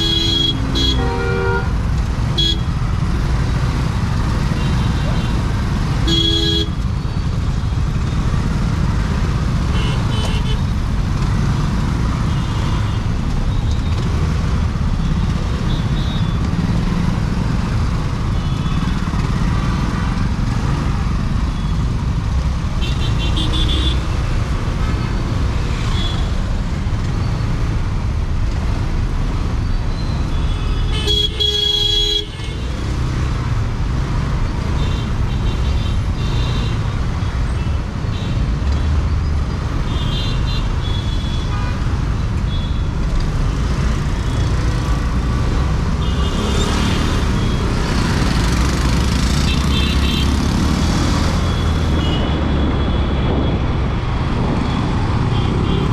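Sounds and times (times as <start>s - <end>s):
vehicle horns honking: 0.0s - 1.8s, 6.0s - 6.8s, 22.8s - 24.2s, 30.3s - 32.8s, 51.5s - 53.1s
scooter engine and wind rumble: 40.7s - 55.9s.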